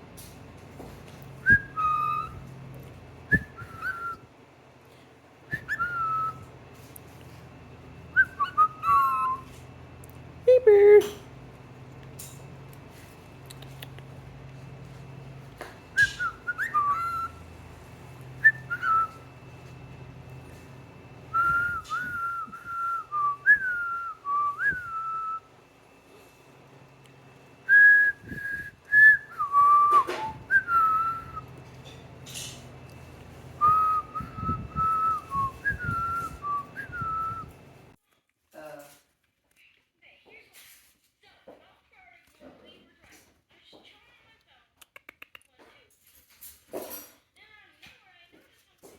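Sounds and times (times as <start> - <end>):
cockatiel whistling a tune: 1.4 - 2.5, 3.3 - 4.2, 5.5 - 6.5, 8.1 - 9.6, 15.9 - 17.4, 18.4 - 19.3, 21.3 - 25.5, 27.7 - 31.5, 33.6 - 37.6.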